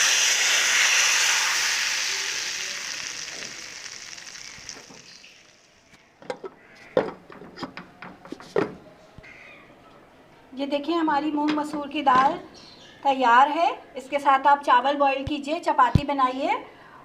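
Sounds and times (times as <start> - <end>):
hot oil sizzling in a pot: 0.0 - 6.2.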